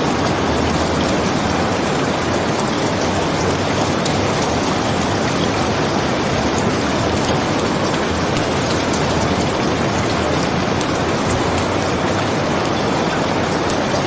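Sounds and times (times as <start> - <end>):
heavy rain: 0.0 - 14.0.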